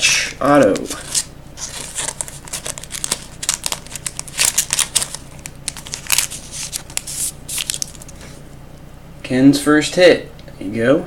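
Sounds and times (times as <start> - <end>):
card sliding into plastic sleeve: 0.6 - 8.4.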